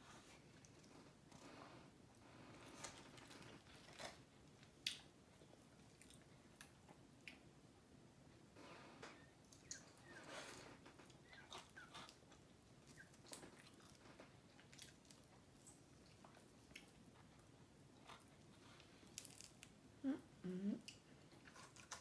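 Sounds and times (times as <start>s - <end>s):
chewing crispy food: 2.4s - 7.7s, 9.0s - 19.8s, 20.9s - 22.0s.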